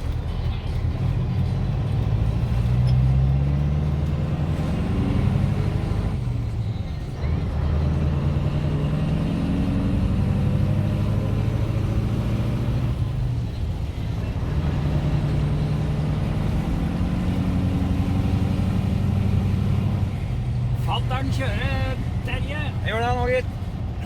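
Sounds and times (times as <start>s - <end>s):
truck diesel engine under load: 0.0s - 24.0s.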